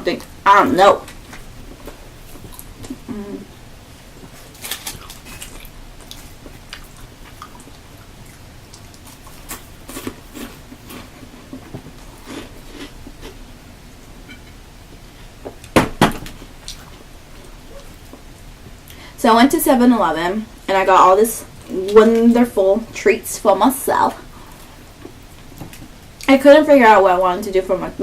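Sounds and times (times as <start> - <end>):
person chewing snack food: 4.1 - 13.6.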